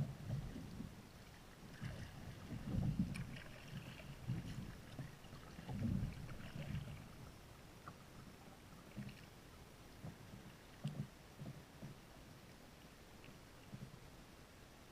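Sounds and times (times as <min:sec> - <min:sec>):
water sloshing from paddling: 0:00.0 - 0:14.0
kayak low thumps: 0:01.8 - 0:07.2.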